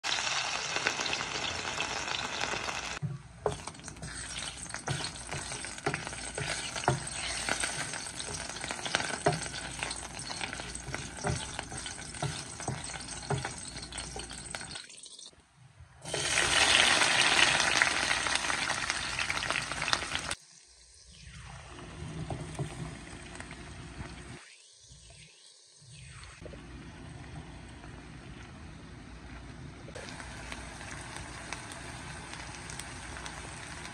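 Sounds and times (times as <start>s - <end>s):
fish sizzling in hot oil: 0.0s - 15.3s, 16.0s - 21.1s, 30.0s - 33.9s
wooden spatula scraping pan: 3.4s - 14.6s.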